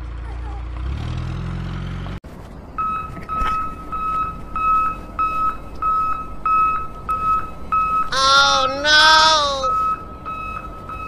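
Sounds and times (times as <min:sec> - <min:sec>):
electronic alarm beeping: 0:02.8 - 0:11.0.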